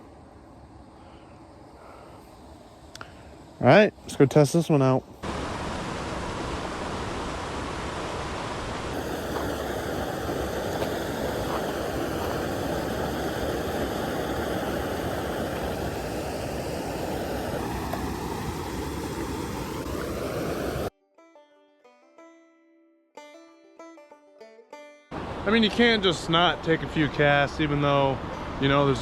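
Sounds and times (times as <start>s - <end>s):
stream water rushing: 4.0s - 20.9s, 25.1s - 29.0s.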